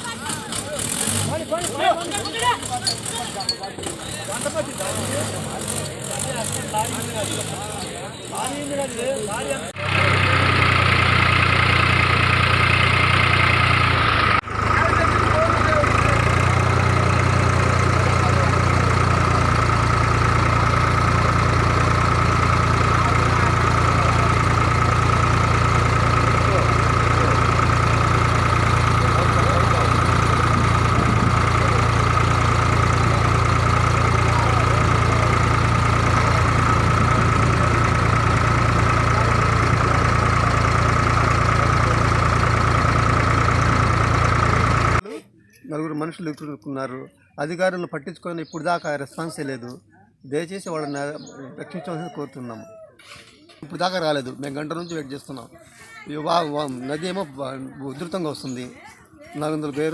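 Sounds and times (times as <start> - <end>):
engine idling: 0.0 - 45.0.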